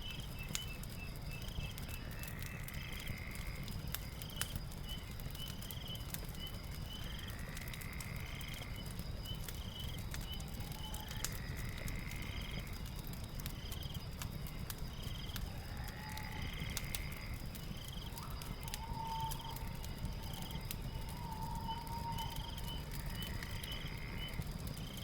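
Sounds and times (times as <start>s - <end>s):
wood fire crackling: 0.0s - 25.0s
night creatures chirping: 15.3s - 24.4s.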